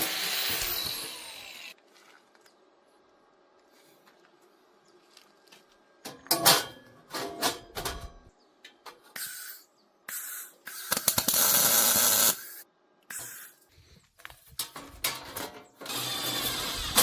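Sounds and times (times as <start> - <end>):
power tool running: 0.0 - 1.8, 15.8 - 17.0
clicks and knocks on metal: 6.1 - 9.2.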